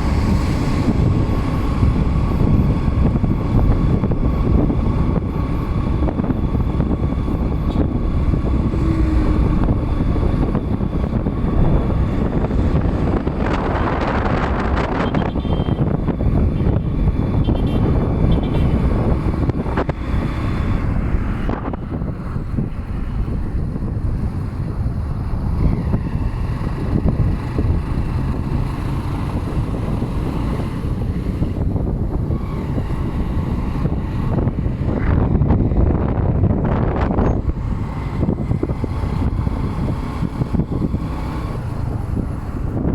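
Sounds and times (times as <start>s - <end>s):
motorcycle running: 0.0s - 42.9s
road noise: 0.0s - 42.9s
wind rumbling on microphone: 0.0s - 42.9s.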